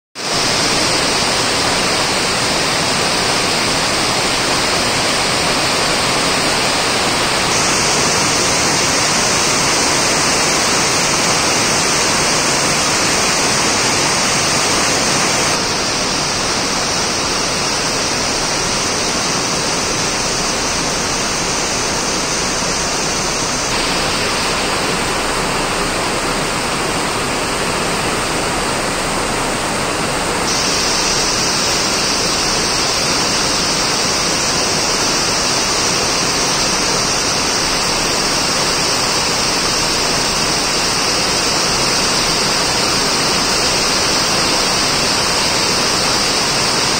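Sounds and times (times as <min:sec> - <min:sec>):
heavy rain on paving: 0:00.2 - 0:46.9.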